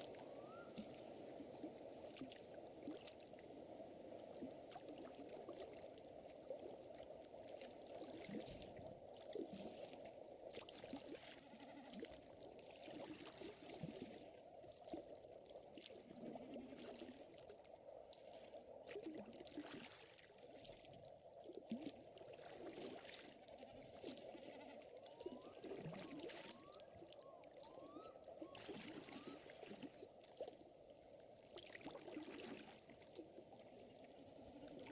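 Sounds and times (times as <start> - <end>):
lake water lapping: 0.0 - 14.3, 18.3 - 34.9.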